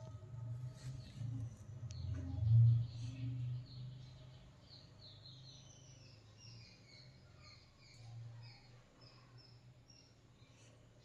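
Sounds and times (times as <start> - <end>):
faint bird chirps: 0.7 - 11.0.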